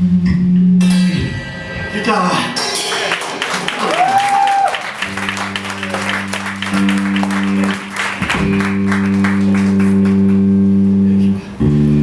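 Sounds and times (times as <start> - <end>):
audience applauding: 2.8 - 10.5
amplified guitar low notes: 4.9 - 12.0.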